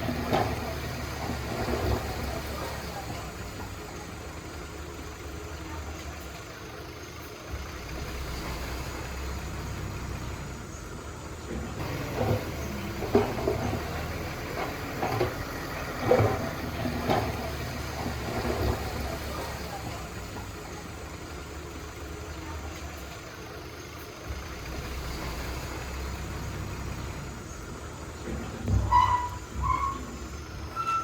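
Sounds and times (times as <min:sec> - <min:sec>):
short knocks and clunks: 0:00.0 - 0:03.8, 0:11.4 - 0:20.5, 0:28.1 - 0:31.0
heavy equipment engine running: 0:00.0 - 0:31.0.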